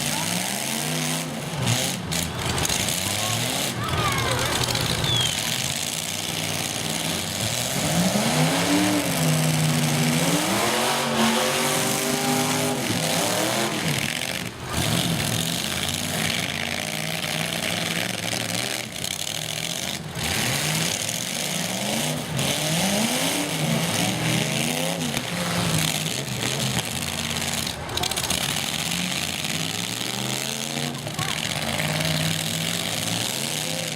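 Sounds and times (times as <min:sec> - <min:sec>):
truck engines revving: 0:00.0 - 0:33.9.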